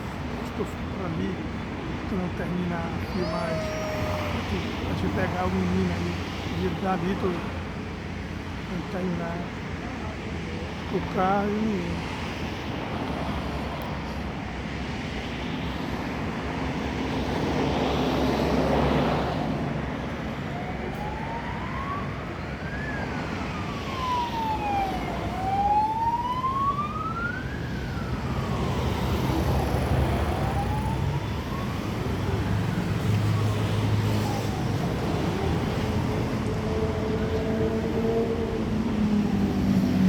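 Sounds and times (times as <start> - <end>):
road traffic: 0.0 - 40.0
emergency siren wailing: 2.2 - 7.0, 20.0 - 40.0.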